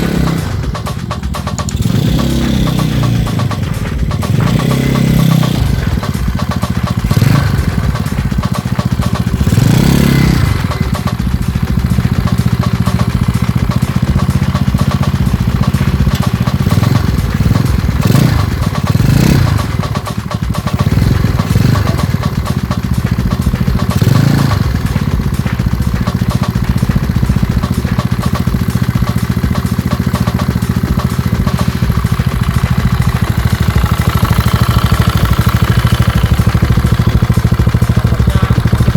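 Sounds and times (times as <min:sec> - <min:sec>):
scooter engine idling: 0:00.0 - 0:38.9
scooter throttle blips: 0:00.0 - 0:38.9.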